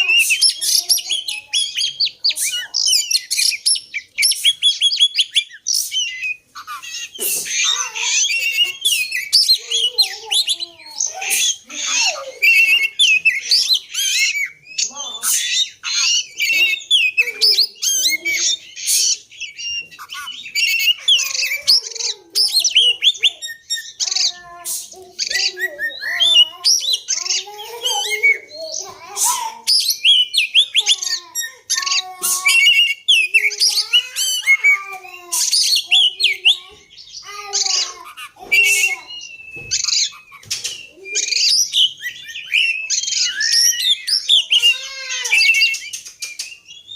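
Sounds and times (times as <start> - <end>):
songbird singing varied whistles: 38.6 - 44.7.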